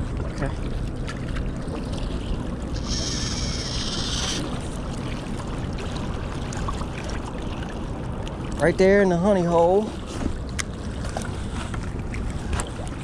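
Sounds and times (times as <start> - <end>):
fishing reel line whirring: 2.7 - 4.6.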